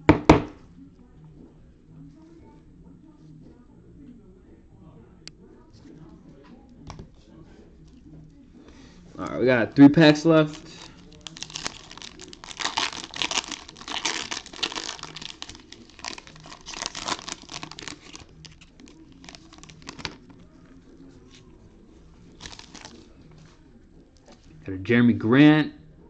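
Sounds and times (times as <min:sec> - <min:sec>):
foil wrapper tearing and crinkling: 0:10.5 - 0:20.3, 0:22.4 - 0:23.0.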